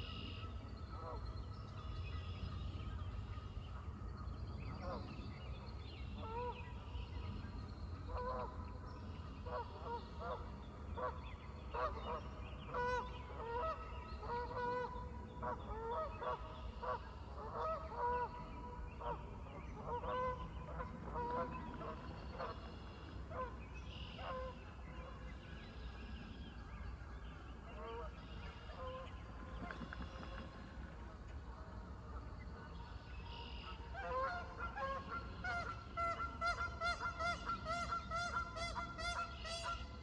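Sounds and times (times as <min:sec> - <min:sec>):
geese honking: 0:33.4 - 0:39.9.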